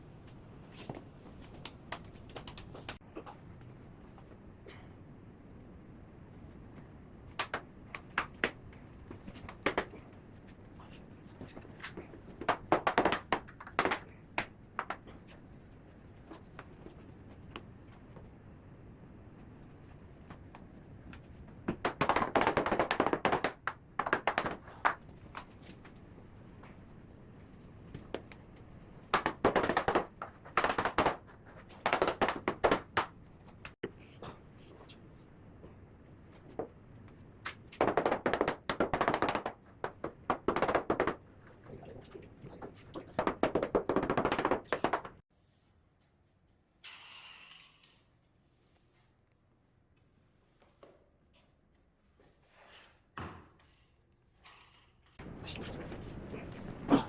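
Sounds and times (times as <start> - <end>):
floor mats knocking and clicking: 0.8 - 3.0, 7.3 - 10.1, 11.4 - 15.1, 20.3 - 26.0, 29.1 - 33.8, 36.4 - 41.3, 42.6 - 45.2.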